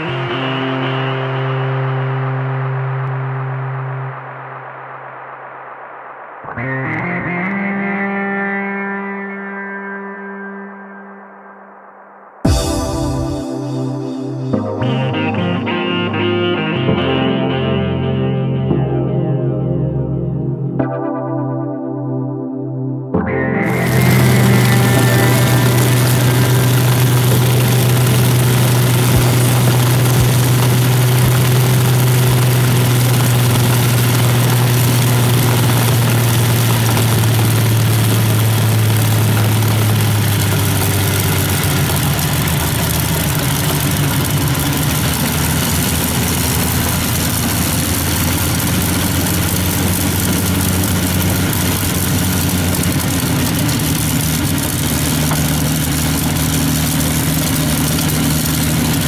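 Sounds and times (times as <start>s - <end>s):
piston aero engine droning: 23.3s - 59.0s.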